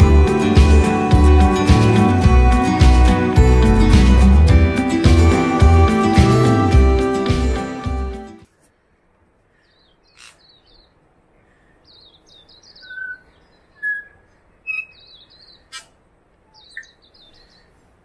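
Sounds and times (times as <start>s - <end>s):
small birds trilling: 9.5s - 17.8s
whistled bird notes: 11.9s - 15.7s.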